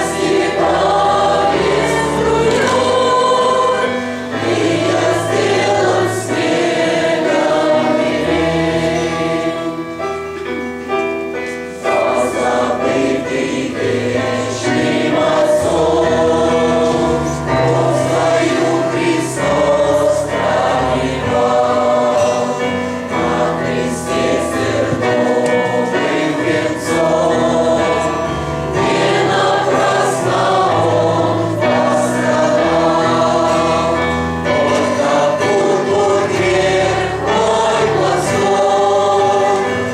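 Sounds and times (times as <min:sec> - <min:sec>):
choir singing a hymn: 0:00.0 - 0:39.9
instrumental accompaniment: 0:00.0 - 0:39.9.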